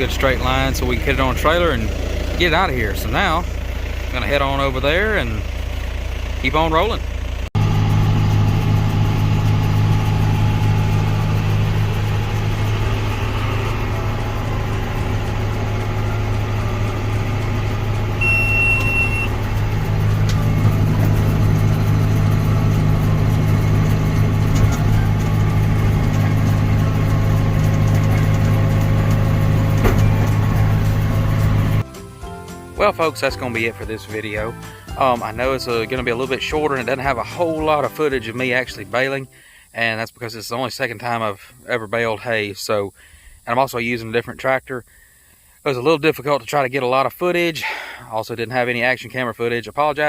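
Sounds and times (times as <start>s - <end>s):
tractor diesel engine running: 0.0s - 50.0s
short high beep: 18.2s - 19.4s.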